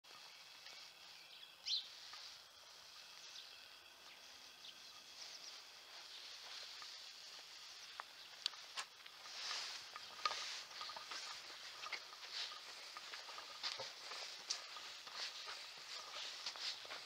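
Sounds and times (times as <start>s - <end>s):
birds chirping: 0.1s - 17.0s
rising bird chirp: 0.1s - 17.0s.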